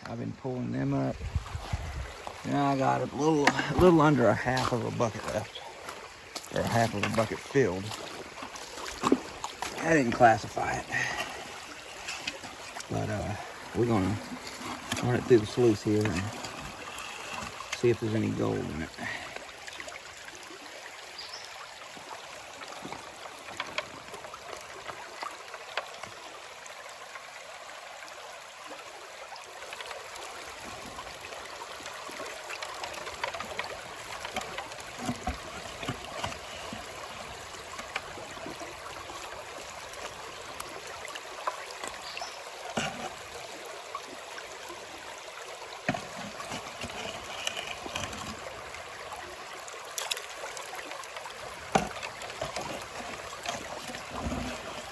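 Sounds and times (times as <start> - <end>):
creek water running: 0.0 - 54.9
small clicks and knocks: 22.9 - 24.0.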